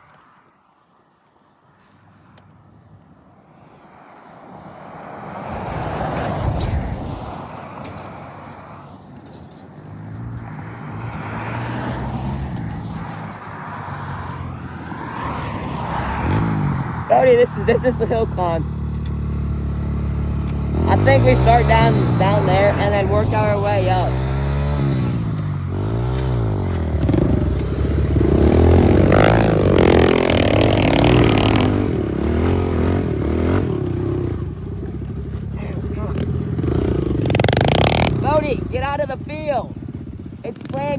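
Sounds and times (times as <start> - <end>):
pit bike engine revving: 14.2 - 40.9
engine running steadily: 17.0 - 40.9
loud rushing noise: 25.8 - 34.2.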